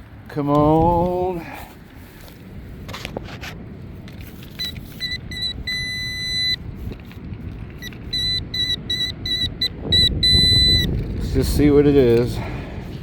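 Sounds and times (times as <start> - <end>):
wind rumbling on microphone: 0.0 - 13.0
pinpointer beeping: 4.6 - 6.6, 7.8 - 10.9.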